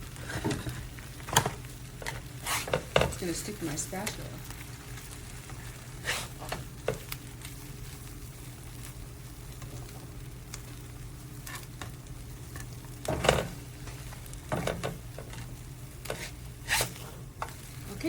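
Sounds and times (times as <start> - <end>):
eggs frying on a griddle: 0.0 - 18.0
spatula scraping and knocking pan: 1.4 - 3.2, 12.6 - 17.8.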